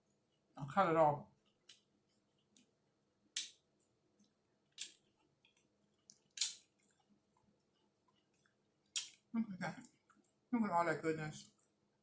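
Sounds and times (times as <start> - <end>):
crunchy chewing: 4.2 - 10.4
mouth clicks: 6.1 - 6.6.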